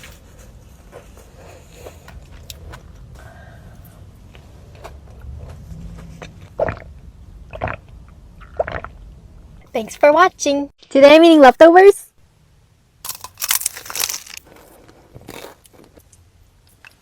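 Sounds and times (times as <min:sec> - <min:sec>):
low steady rumble: 0:00.0 - 0:10.7
loud crunching bites: 0:13.0 - 0:16.0.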